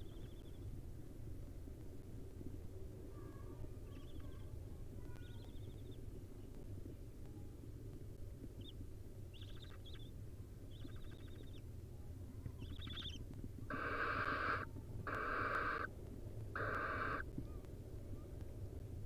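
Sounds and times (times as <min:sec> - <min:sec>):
owl nestlings chittering: 0:09.3 - 0:10.1, 0:10.7 - 0:11.6, 0:12.6 - 0:15.9, 0:16.6 - 0:17.2
owl nestlings hissing begging calls: 0:13.7 - 0:15.9, 0:16.6 - 0:17.2.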